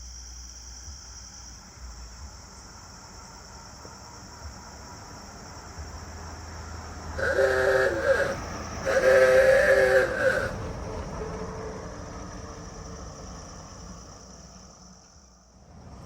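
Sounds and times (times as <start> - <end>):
engine rumble: 1.7 - 16.0
multi-tone vehicle horn: 7.2 - 10.9.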